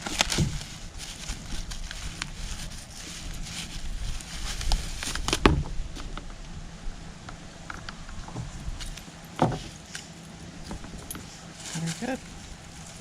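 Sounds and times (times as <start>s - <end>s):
low rumble: 0.0s - 13.0s
handling clicks and knocks: 7.6s - 11.4s.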